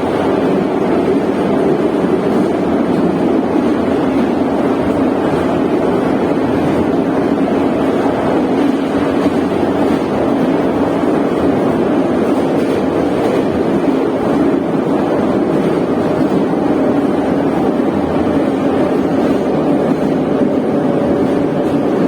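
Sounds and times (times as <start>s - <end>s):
train wheels rumbling on rails: 0.0s - 22.0s
tunnel noise: 0.0s - 22.0s.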